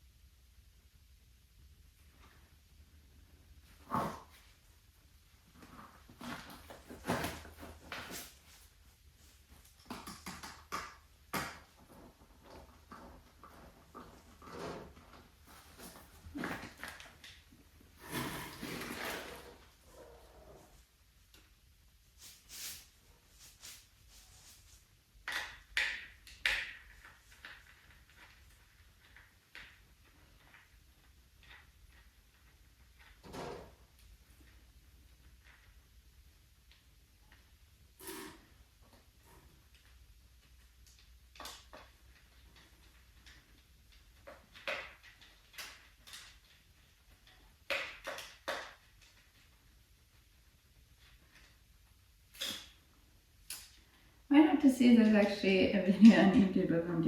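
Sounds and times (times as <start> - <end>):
hard objects knocking and clicking: 9.7 - 17.4.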